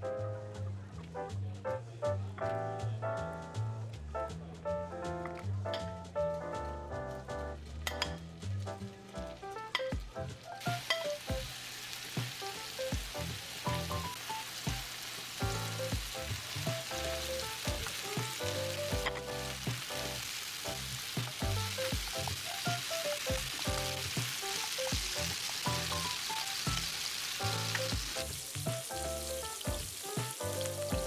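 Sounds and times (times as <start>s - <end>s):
background music: 0.0s - 31.0s
meatballs sizzling in oil: 8.4s - 31.0s.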